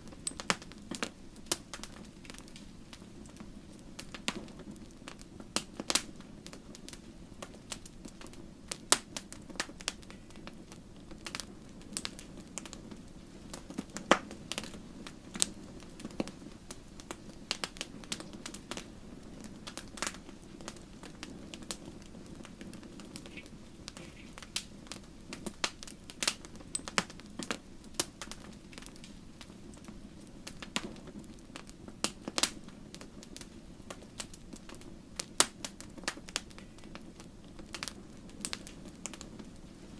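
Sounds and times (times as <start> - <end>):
logs crackling and popping: 0.0 - 39.9
low rush of flames: 0.0 - 39.9.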